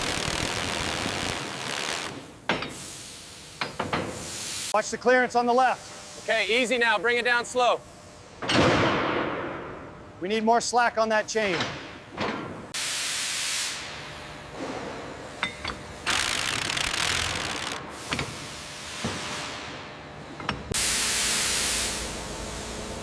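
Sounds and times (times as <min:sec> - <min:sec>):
mechanical clicks and ratcheting: 0:16.0 - 0:17.8.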